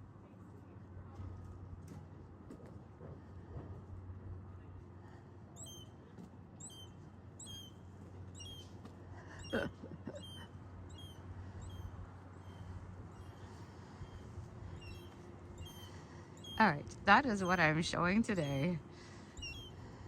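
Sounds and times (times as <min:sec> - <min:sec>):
squeaky animal chirps: 0:10.2 - 0:11.8.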